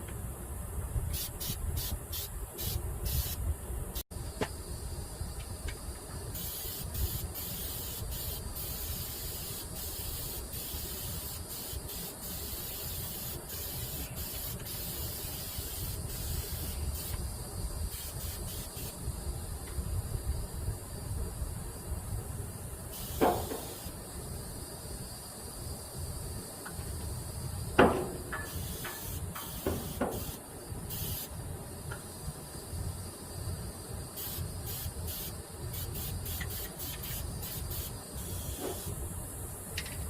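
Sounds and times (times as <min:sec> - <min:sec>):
aerosol can spraying: 0:01.1 - 0:03.4, 0:06.4 - 0:17.2, 0:17.9 - 0:19.0, 0:22.9 - 0:24.0, 0:28.4 - 0:31.3, 0:34.2 - 0:38.9.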